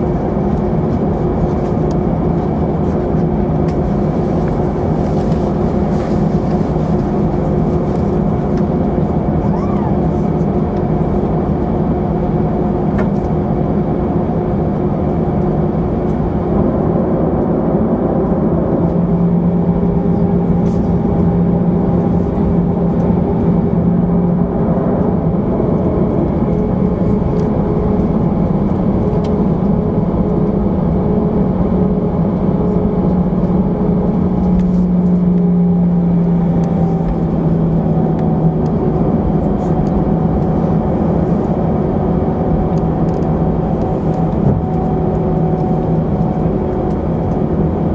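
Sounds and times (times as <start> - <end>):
jet engines humming in cabin: 0.0 - 47.9.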